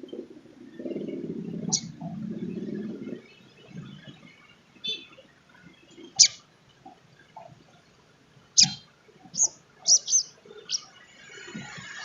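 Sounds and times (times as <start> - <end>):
bird chip calls: 1.6 - 2.2, 6.2 - 6.4, 8.6 - 10.9.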